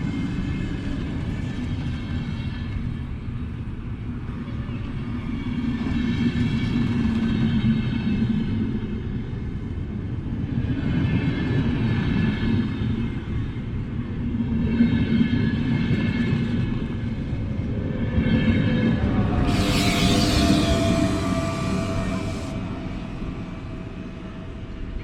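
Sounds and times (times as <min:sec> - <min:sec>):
electric train running: 0:15.8 - 0:25.0.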